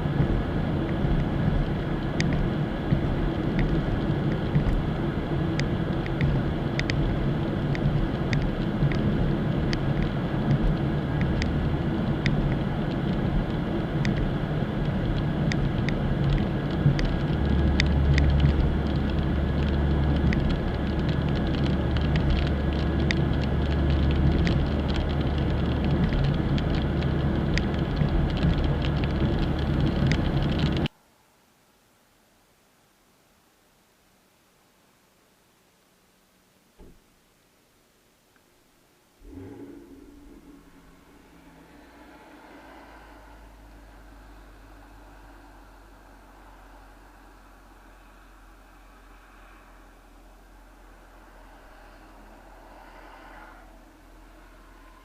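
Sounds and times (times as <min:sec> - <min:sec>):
raindrops ticking on car: 0:00.0 - 0:30.9
engine and road hum: 0:00.0 - 0:31.2, 0:38.6 - 0:55.0.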